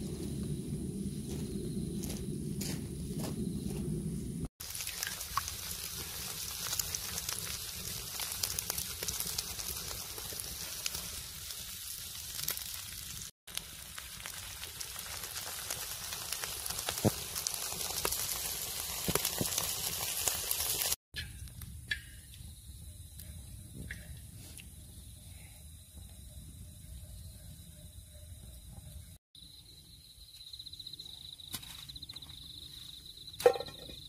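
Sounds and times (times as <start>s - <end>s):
fried rice sizzling on griddle: 4.6s - 21.0s.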